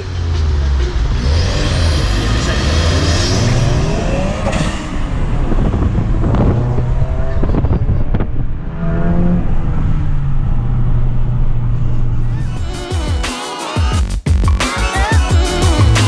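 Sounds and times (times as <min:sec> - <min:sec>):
car engine accelerating: 0:00.0 - 0:12.4.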